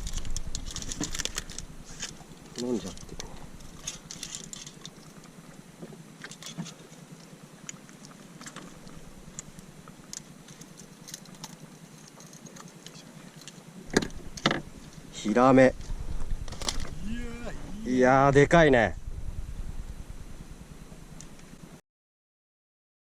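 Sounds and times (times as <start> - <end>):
small ticks and rustles of handling: 0.0 - 17.2.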